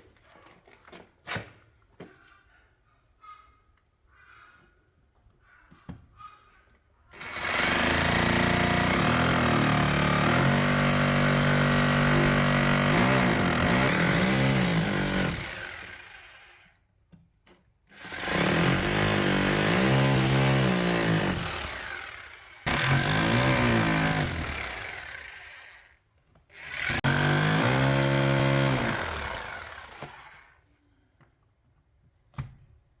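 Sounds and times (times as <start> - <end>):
electric drill drilling: 7.2 - 16.7, 18.0 - 25.9, 26.6 - 30.5.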